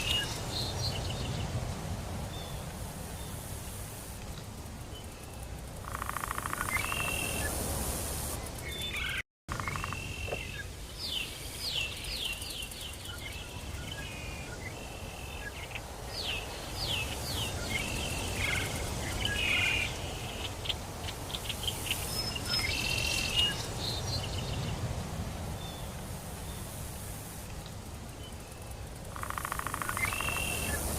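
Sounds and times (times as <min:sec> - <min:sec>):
birds sweeping chirping calls: 0:00.0 - 0:01.6, 0:04.9 - 0:27.4, 0:28.1 - 0:30.9
high-pitched insect buzzing: 0:29.1 - 0:30.9.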